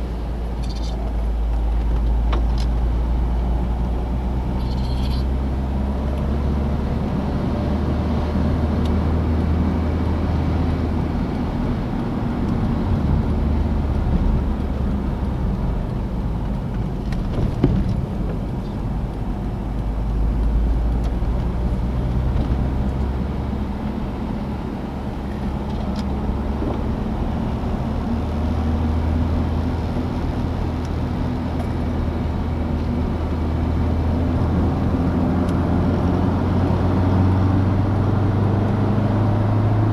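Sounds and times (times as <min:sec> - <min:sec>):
car engine drone: 0:00.0 - 0:39.9
road and wind noise: 0:00.0 - 0:39.9.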